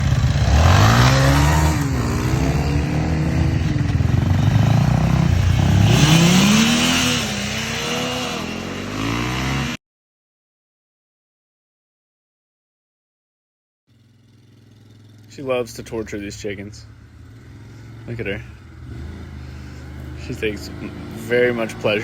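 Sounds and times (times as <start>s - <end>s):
vehicle engine revving: 0.0s - 9.8s, 14.3s - 22.0s.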